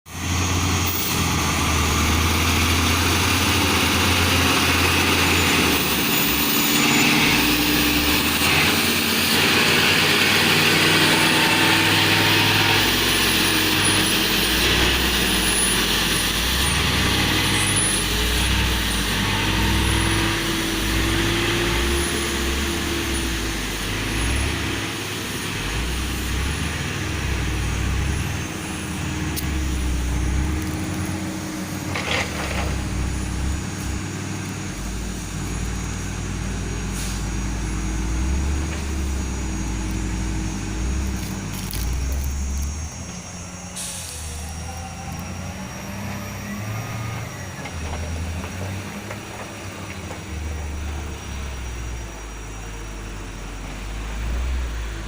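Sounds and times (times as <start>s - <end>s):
diesel truck engine under load: 0.1s - 55.0s.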